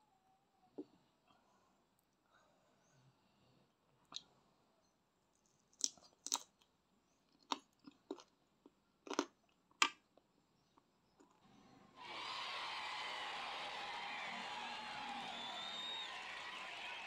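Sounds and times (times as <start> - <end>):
quiet chewing: 5.4 - 11.6.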